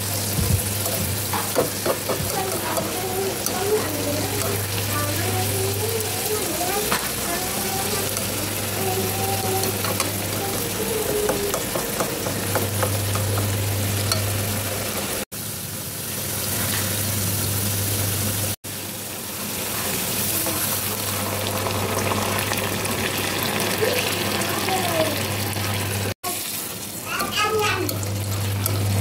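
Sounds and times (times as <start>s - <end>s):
shrimp sizzling in hot oil: 0.0s - 29.0s.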